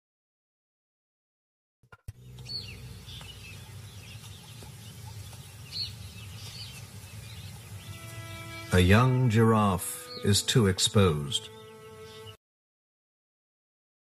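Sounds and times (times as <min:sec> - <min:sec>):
low outdoor rumble: 0:02.2 - 0:12.2
bird chirps: 0:02.2 - 0:12.4.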